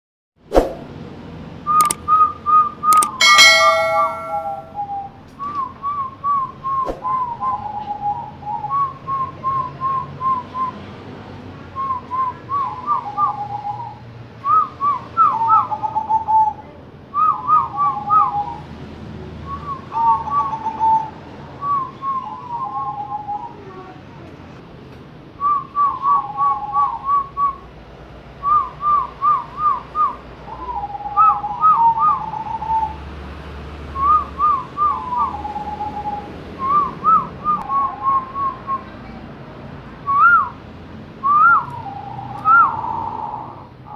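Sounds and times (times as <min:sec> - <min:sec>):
loud full tone: 0:03.0 - 0:05.0.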